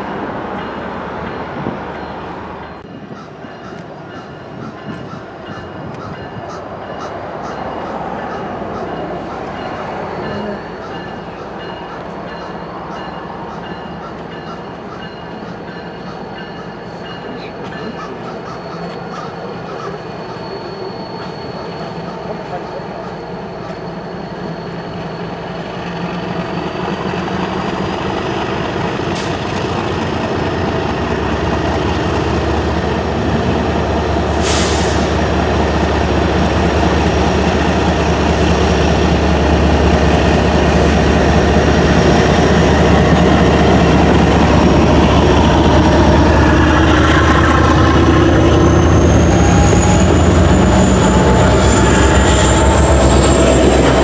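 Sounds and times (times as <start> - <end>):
diesel locomotives passing: 0.0 - 54.0
high wheel squeal: 4.2 - 27.1, 45.6 - 54.0
brief air hiss: 34.4 - 35.1.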